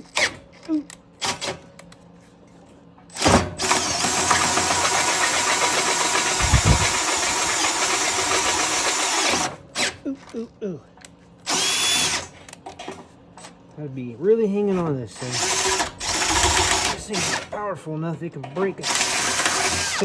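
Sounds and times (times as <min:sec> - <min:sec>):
cordless drill boring through steel: 0:03.6 - 0:09.5, 0:11.5 - 0:12.2, 0:15.2 - 0:17.5, 0:18.8 - 0:20.0.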